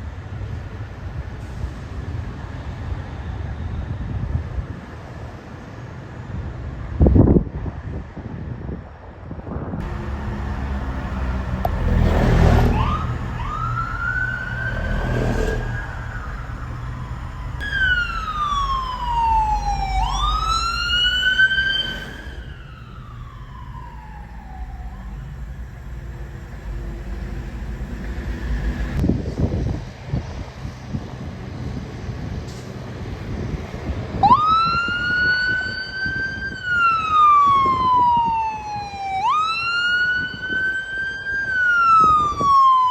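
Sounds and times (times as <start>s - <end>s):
emergency siren wailing: 9.8s - 29.0s, 34.1s - 42.9s
traffic rumble: 9.8s - 42.8s.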